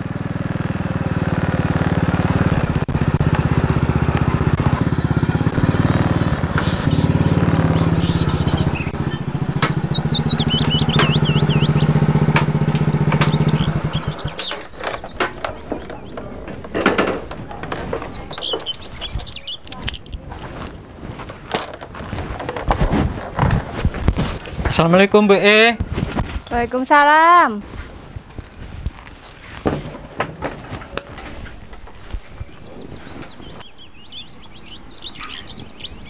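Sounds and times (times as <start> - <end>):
birds chirping: 0.0 - 22.7, 29.7 - 36.0
motorcycle engine running: 0.0 - 24.5
clicks and knocks: 12.3 - 20.8.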